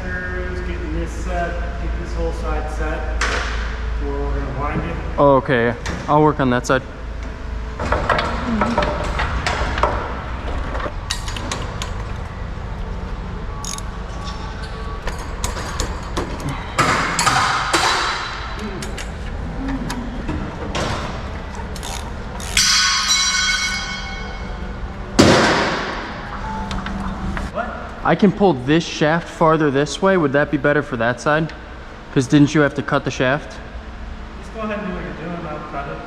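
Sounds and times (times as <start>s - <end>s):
steady low hum: 0.0s - 36.0s
ringing metal clatter: 22.5s - 24.7s.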